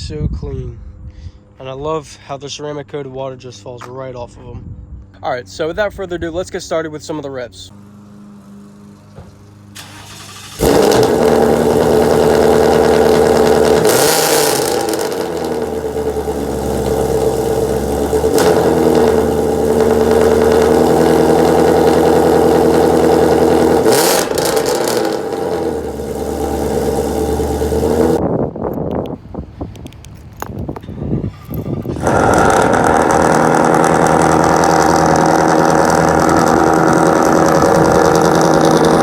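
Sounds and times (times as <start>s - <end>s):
loud rough engine running: 7.7s - 28.2s, 31.4s - 39.0s
car engine starting with bark: 9.0s - 28.2s, 31.3s - 39.0s.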